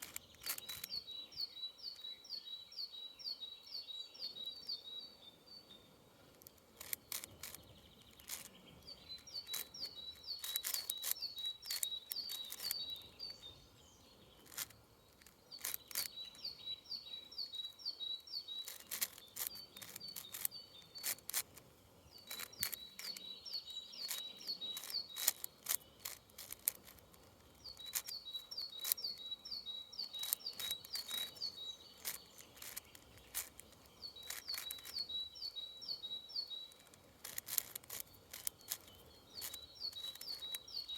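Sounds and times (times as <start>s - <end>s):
puzzle cube clicking: 0.0s - 1.0s, 6.3s - 13.4s, 14.4s - 16.5s, 18.6s - 29.3s, 30.0s - 35.2s, 36.6s - 40.9s
songbird singing: 0.0s - 40.9s.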